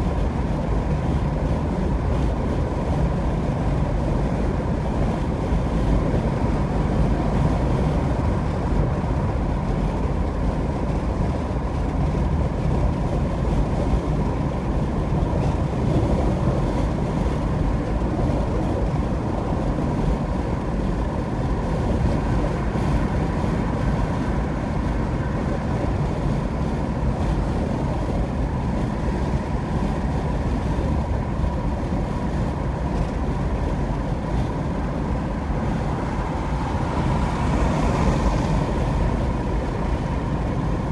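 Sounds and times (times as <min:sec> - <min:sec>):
car engine hum: 0:00.0 - 0:40.9
car tyre rumble: 0:00.0 - 0:40.9.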